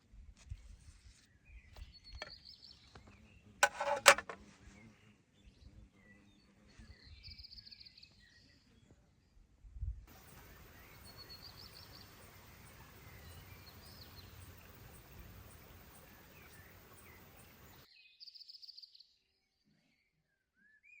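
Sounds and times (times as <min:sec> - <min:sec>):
birds chirping: 0:10.1 - 0:17.9
steady background hiss: 0:10.1 - 0:17.9.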